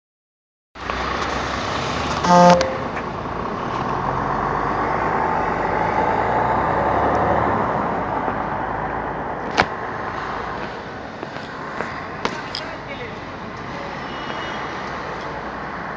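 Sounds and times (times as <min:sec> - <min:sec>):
fire truck engine and road noise: 0:00.8 - 0:15.9
short horn toot: 0:02.2 - 0:03.0.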